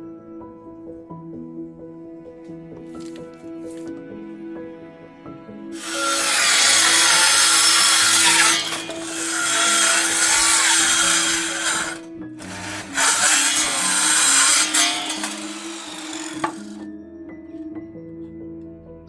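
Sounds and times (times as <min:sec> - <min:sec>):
piano music: 0:00.0 - 0:19.0
power tool running: 0:05.8 - 0:16.9.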